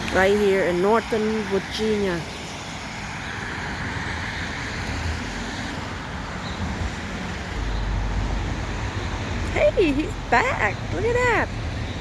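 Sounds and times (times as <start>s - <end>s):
cars passing: 0.0s - 12.0s
low rumble: 7.6s - 12.0s.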